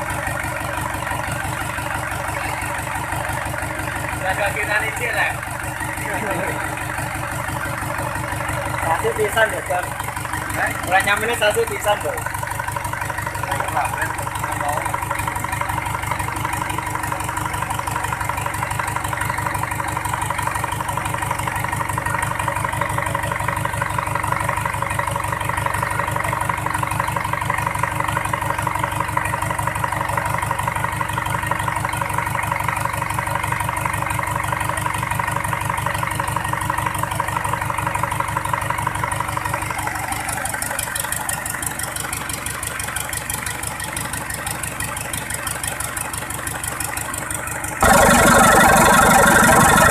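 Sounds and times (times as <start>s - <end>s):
diesel engine idling: 0.0s - 49.9s
steady whine: 47.8s - 49.9s.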